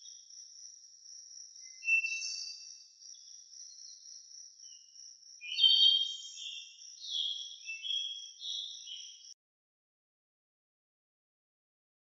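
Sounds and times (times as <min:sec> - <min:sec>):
insect drone: 0:00.0 - 0:05.6
bird shrill chirping: 0:01.6 - 0:02.6.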